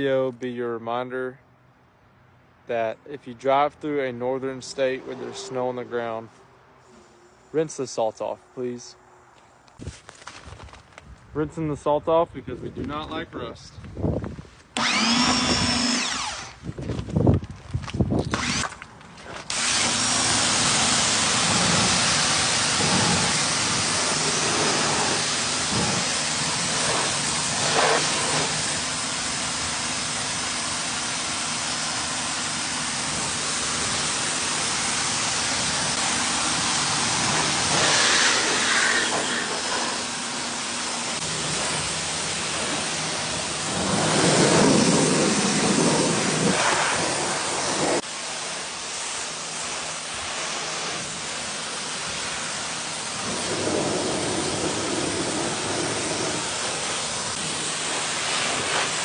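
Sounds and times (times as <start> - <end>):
high-pressure water spray hiss: 19.4 - 59.0.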